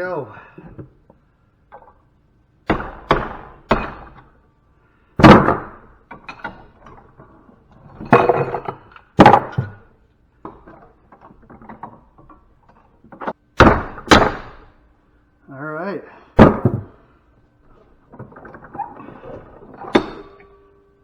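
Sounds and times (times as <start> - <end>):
sledgehammer striking metal: 13.6 - 14.7.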